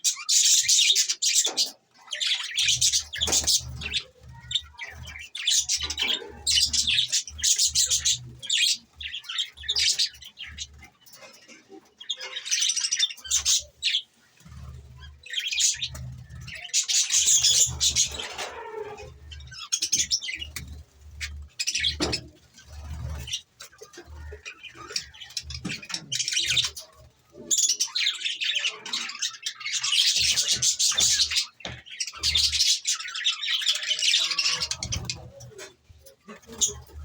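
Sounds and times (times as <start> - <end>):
budgerigars chattering and chirping: 0.0 - 37.0.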